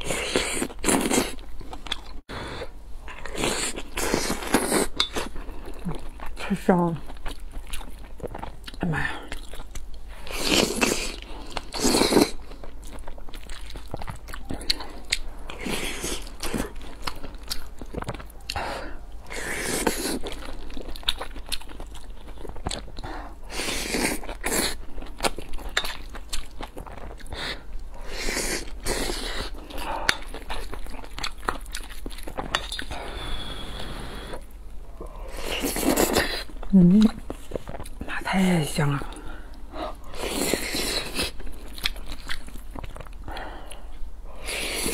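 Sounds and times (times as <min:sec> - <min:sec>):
chewing and lip smacking: 0:07.0 - 0:23.3, 0:23.9 - 0:33.0, 0:39.1 - 0:44.0.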